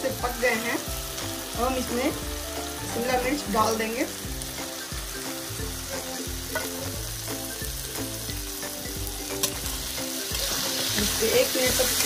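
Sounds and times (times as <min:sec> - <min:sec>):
light background music: 0:00.0 - 0:12.0
vegetables sizzling in a pan: 0:00.0 - 0:12.0.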